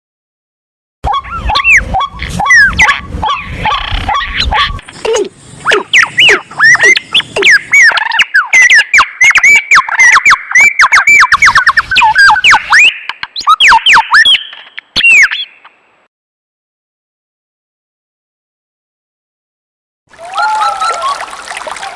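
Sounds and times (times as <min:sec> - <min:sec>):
squeaky animal chirps: 0:01.0 - 0:15.7.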